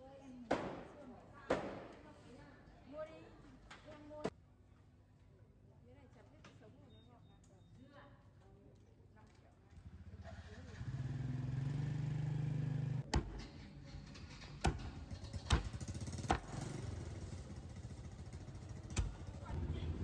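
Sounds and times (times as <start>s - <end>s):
small engine running: 9.8s - 13.0s, 14.0s - 20.0s.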